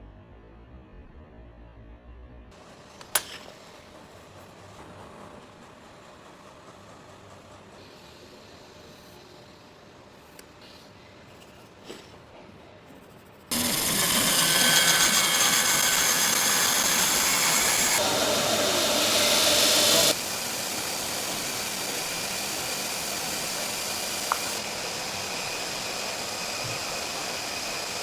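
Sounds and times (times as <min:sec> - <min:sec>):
click: 0:03.0 - 0:03.5
woodworking power tools running: 0:13.5 - 0:28.0.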